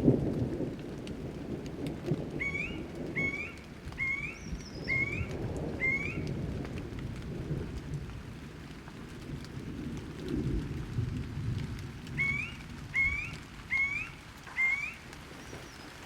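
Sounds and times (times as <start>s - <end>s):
low rumble of thunder: 0.0s - 16.0s
rain falling: 0.0s - 16.0s
bird chirping: 2.4s - 6.2s, 12.2s - 16.0s.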